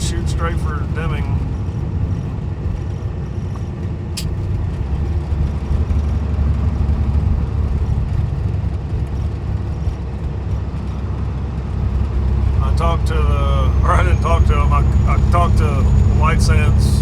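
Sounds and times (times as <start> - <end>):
truck diesel engine droning: 0.0 - 17.0
sharp click: 4.2 - 4.4.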